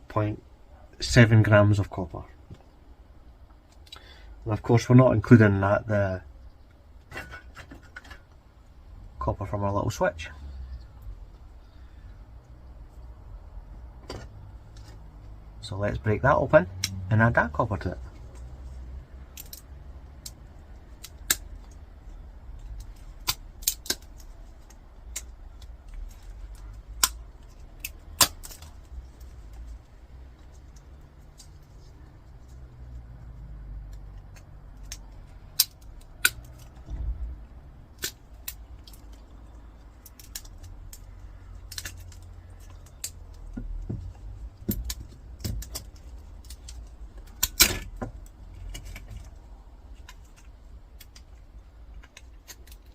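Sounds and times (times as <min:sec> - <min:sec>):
tools prying at plastic casing: 0:40.0 - 0:49.3.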